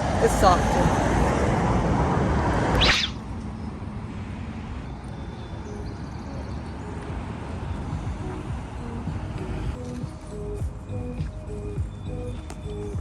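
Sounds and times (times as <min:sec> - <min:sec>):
rising sweep: 0:00.0 - 0:05.7
low traffic rumble: 0:00.0 - 0:13.0.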